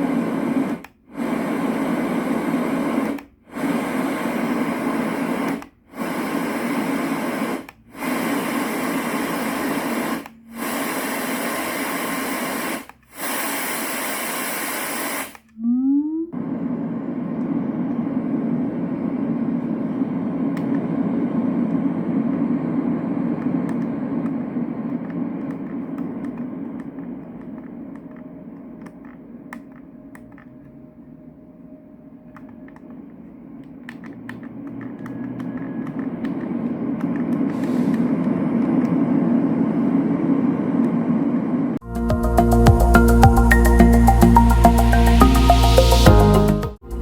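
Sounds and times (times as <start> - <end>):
white noise machine rushing: 0.0 - 15.5, 16.4 - 47.0
faint clicks: 21.6 - 31.2, 32.2 - 39.1.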